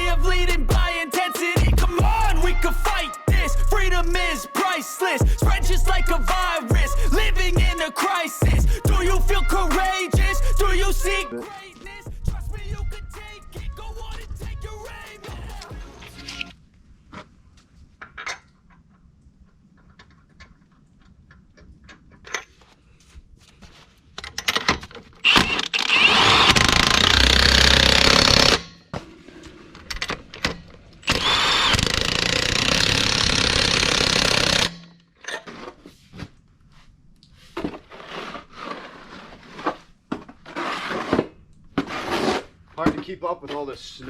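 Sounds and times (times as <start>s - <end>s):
impact wrench running: 25.7s - 28.6s, 31.1s - 34.9s.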